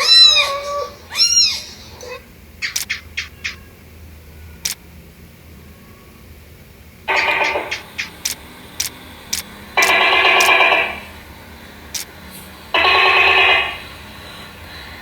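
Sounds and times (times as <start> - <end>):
gecko trilling calls: 1.1 - 3.8, 7.1 - 11.1
short sharp clicks: 2.6 - 3.1, 7.1 - 10.6.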